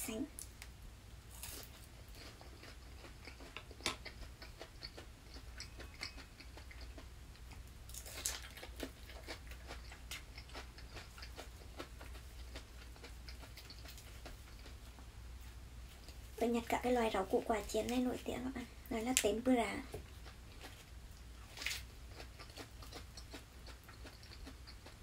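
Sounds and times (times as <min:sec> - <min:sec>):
crunchy chewing of fried food: 0:00.4 - 0:16.4, 0:19.7 - 0:25.0.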